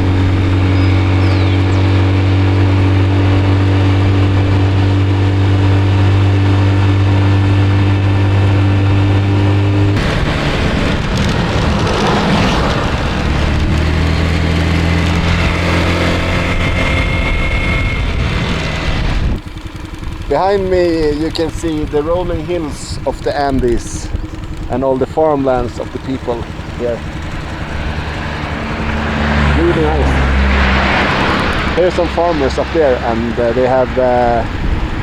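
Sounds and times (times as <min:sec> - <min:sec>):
scooter engine running: 0:00.0 - 0:35.0
rushing noise: 0:10.0 - 0:19.4.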